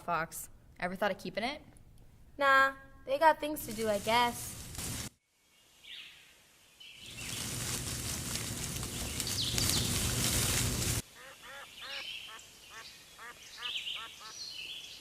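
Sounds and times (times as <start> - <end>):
short repeated bird calls: 11.2 - 15.0.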